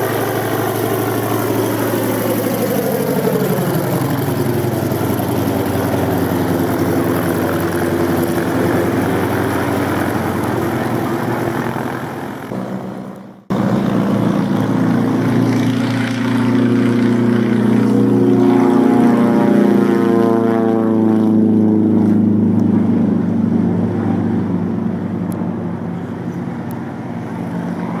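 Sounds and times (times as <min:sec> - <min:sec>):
propeller plane engine droning: 0:00.0 - 0:28.0.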